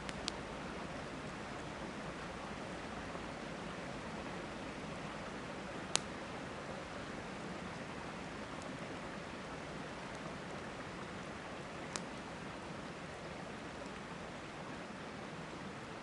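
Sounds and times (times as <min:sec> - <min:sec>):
campfire crackling: 0:00.0 - 0:00.8, 0:04.2 - 0:14.8
river flowing: 0:00.0 - 0:16.0.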